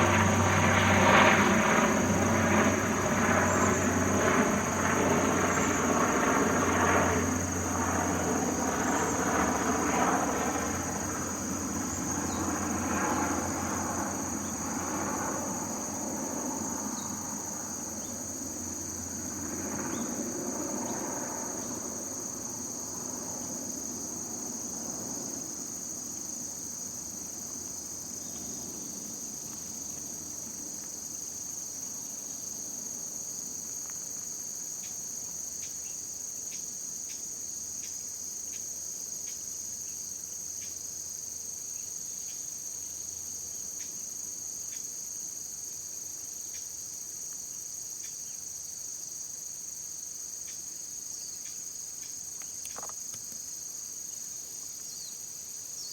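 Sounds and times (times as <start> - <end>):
distant engine: 0.0 - 22.0
crickets and insects chirping: 0.0 - 55.9.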